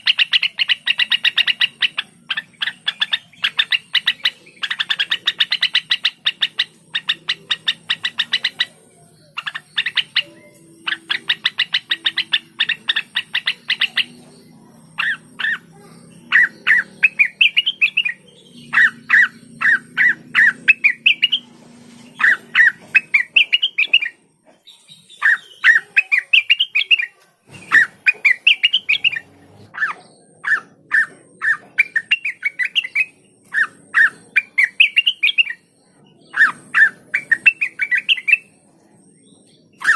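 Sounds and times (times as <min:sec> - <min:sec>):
bird chattering: 0:00.0 - 0:39.9
bird whistling rising notes: 0:16.3 - 0:24.2.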